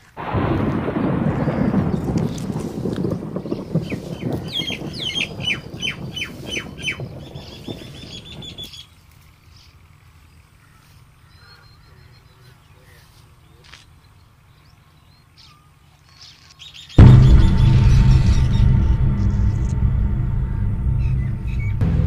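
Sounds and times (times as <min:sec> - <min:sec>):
low rumble: 0:17.0 - 0:22.0.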